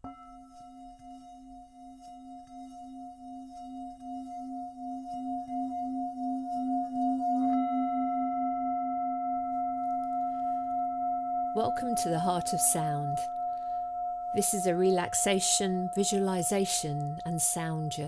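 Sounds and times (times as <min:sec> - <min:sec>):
singing bowl humming: 0:00.0 - 0:18.0.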